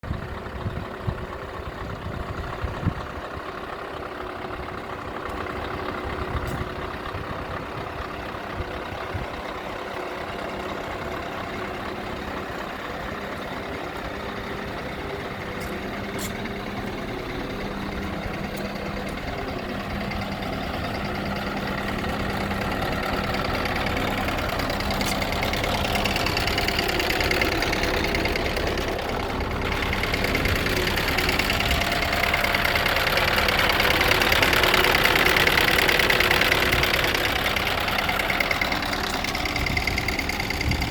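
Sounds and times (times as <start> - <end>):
truck diesel engine idling: 0.0 - 40.9.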